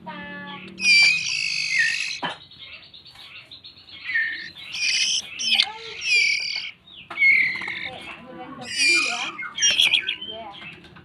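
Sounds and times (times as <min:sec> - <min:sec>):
bird chirps and whistles: 0:00.8 - 0:02.2, 0:03.9 - 0:08.0, 0:08.6 - 0:10.4.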